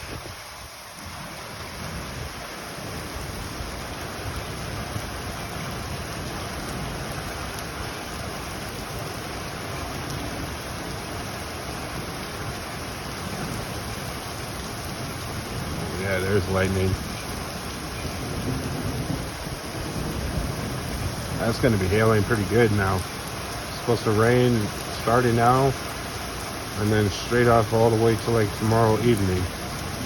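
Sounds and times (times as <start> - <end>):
heavy rain hissing: 0.0 - 30.0
low thunder rumble: 14.6 - 25.5.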